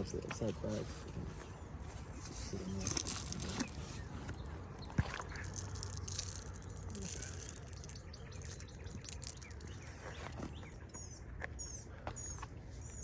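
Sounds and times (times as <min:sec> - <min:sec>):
high bird chirps: 0:02.6 - 0:13.0.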